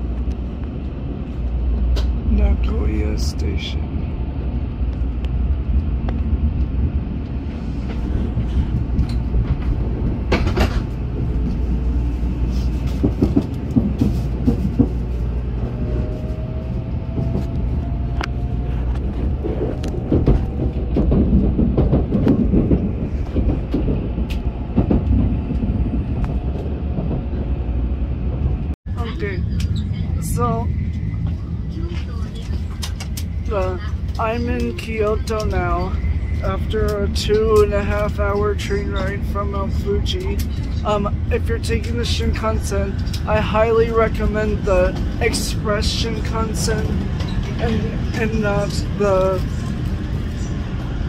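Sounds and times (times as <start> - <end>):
train running rumble: 0.0 - 51.0.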